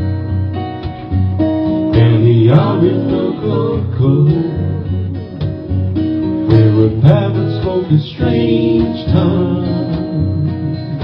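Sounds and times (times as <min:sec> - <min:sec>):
acoustic guitar strummed: 0:00.0 - 0:11.0
people singing: 0:01.9 - 0:05.5, 0:06.5 - 0:11.0.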